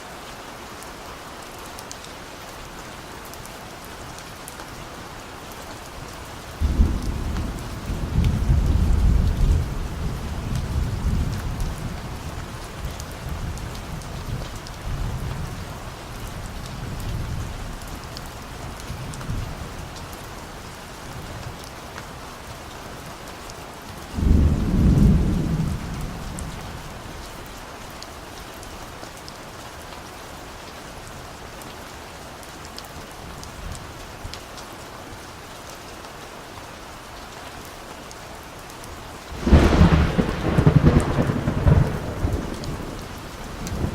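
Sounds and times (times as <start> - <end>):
steady rain falling: 0.0 - 43.9
distant thunder rumbling: 6.6 - 12.7, 24.2 - 26.9, 39.3 - 43.9.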